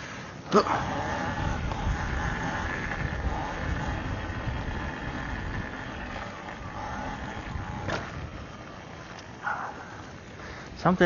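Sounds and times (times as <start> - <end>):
electric dirt bike motor whine: 0.6 - 10.4
low rumble: 0.6 - 10.4.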